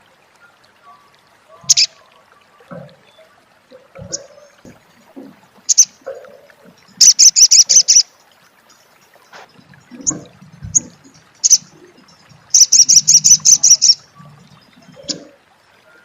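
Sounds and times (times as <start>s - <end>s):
bird chattering trill: 1.7s - 1.9s, 5.7s - 5.9s, 7.0s - 8.1s, 10.8s - 11.7s, 12.5s - 14.0s.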